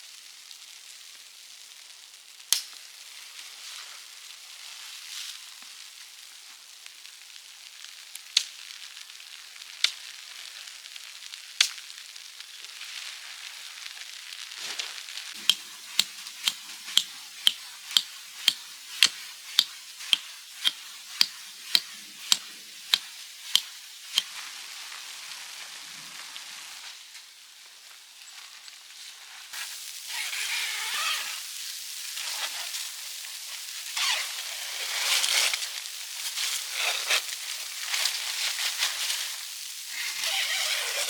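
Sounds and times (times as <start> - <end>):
steady hiss: 15.0 - 28.4, 29.1 - 41.0.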